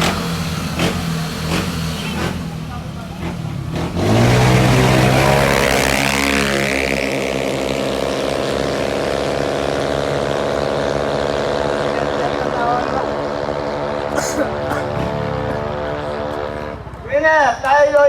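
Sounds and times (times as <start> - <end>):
scooter engines revving: 0.0 - 18.0.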